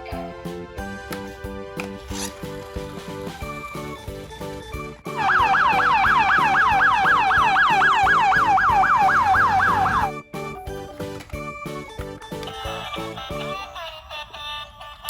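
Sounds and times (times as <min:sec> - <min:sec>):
background music with beat: 0:00.1 - 0:13.6
electronic siren yelping: 0:05.2 - 0:10.2.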